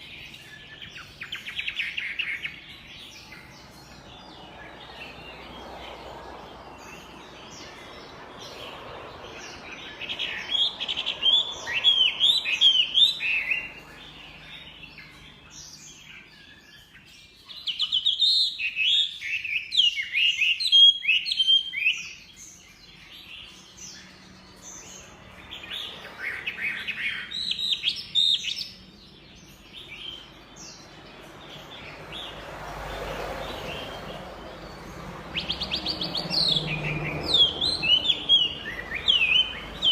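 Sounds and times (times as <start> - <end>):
bird singing whistled notes: 9.6 - 25.0, 35.3 - 39.9.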